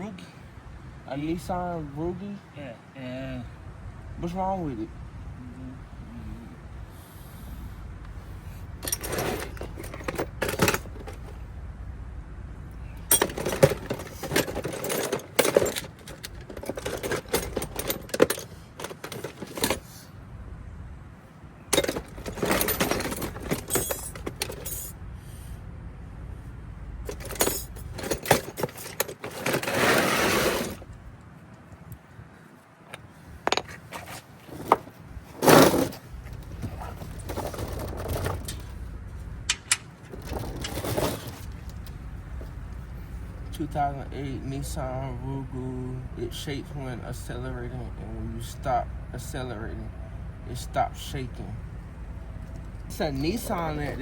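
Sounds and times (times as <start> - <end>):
small metal objects clinking: 21.7 - 25.0, 27.1 - 30.8.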